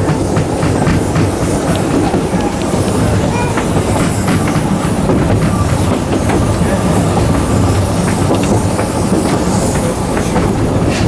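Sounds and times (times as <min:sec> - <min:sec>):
train rumbling along track: 0:00.0 - 0:11.0
wheel clicks over rail joints: 0:00.0 - 0:11.0.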